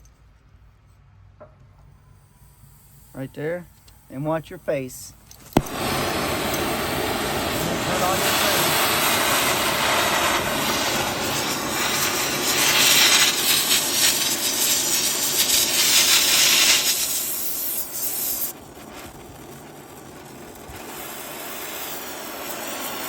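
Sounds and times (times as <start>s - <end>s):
torch flame hissing: 2.0s - 23.0s.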